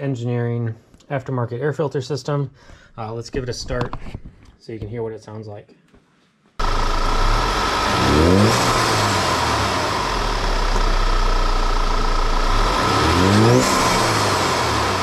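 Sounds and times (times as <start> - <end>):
car engine revving: 6.6 - 15.0
engine intake noise: 6.6 - 15.0.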